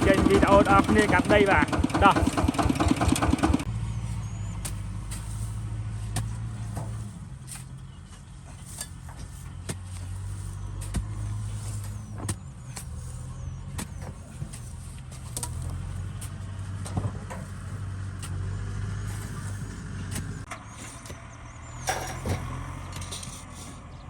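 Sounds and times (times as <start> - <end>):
sharp knocks and clanks: 0.0 - 3.7
diesel engine running: 0.0 - 24.0.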